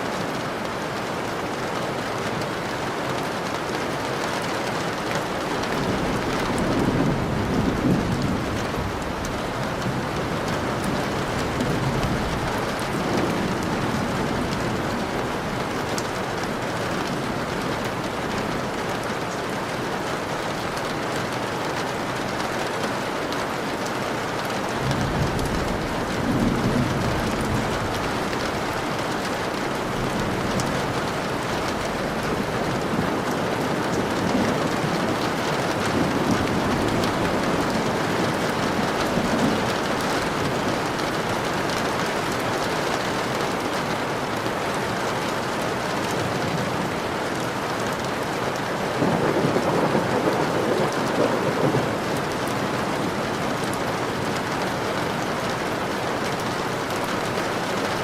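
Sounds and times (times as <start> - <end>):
heavy rain: 0.0 - 58.0
rolling thunder: 5.2 - 18.8, 24.8 - 43.6, 49.0 - 54.4.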